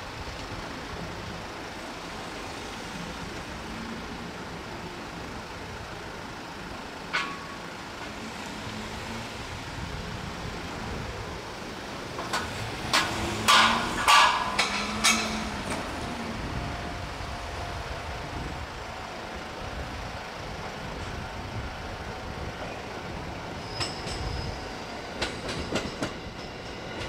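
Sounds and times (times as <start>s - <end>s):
electric train moving slowly: 0.0s - 27.0s
sharp metallic clanks: 12.3s - 15.8s.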